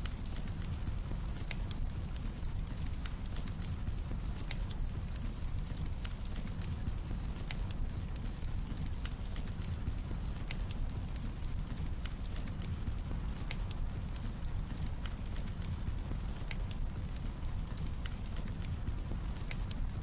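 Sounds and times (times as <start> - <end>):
campfire crackling and popping: 0.0 - 20.0
cricket chirping: 0.2 - 10.8.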